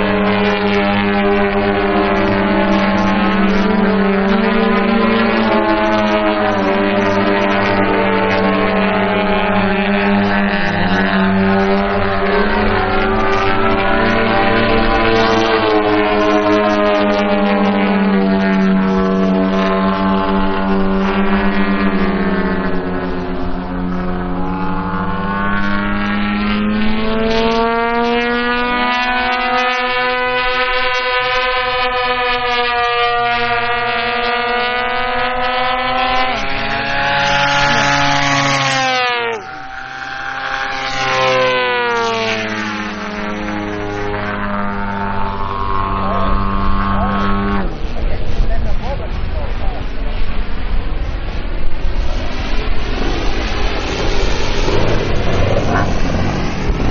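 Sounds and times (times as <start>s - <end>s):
model plane propeller engines: 0.0s - 56.9s.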